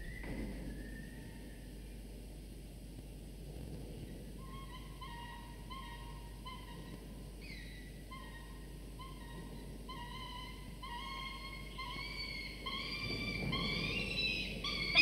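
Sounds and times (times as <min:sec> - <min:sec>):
faint steady hum: 0:00.0 - 0:15.0
bird whistle-like calls: 0:11.0 - 0:15.0.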